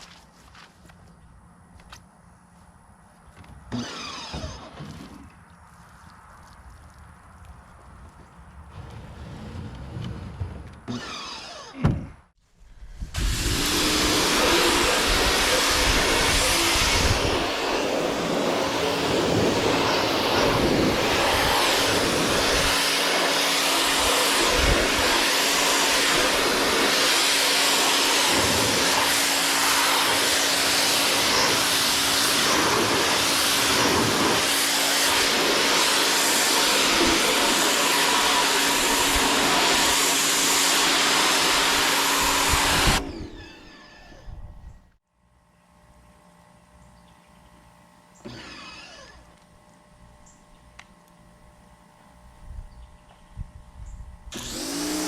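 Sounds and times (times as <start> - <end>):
electric motor hum: 8.6 - 11.9, 12.6 - 55.0
loud rushing hiss: 12.6 - 43.4.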